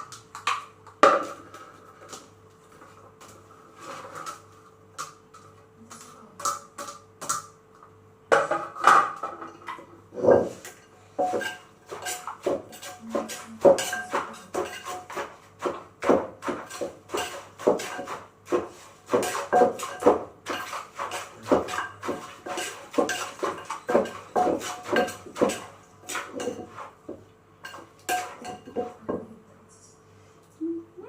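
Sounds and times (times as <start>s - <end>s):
pestle knocking in a mortar: 10.2s - 29.3s.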